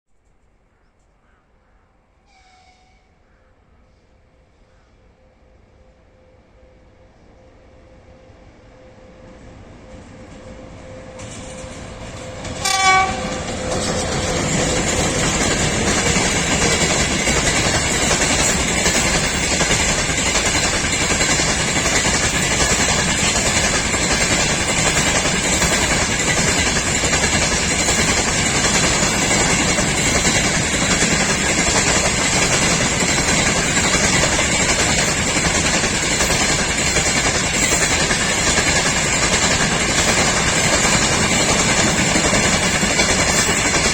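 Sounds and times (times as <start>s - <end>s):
electric locomotive passing: 4.0s - 43.9s
wheels clacking over rail joints: 11.2s - 43.9s
locomotive horn blast: 12.6s - 13.7s.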